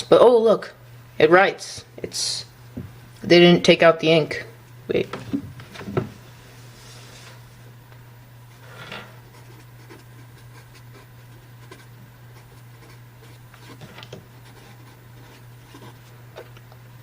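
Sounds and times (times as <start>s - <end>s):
steady low hum: 0.0s - 17.0s
pen writing on paper: 9.4s - 16.1s.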